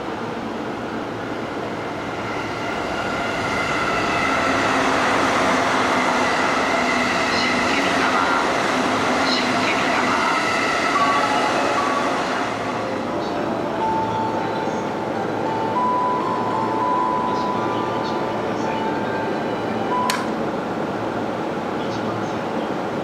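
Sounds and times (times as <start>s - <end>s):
electric train running past: 0.0s - 23.0s.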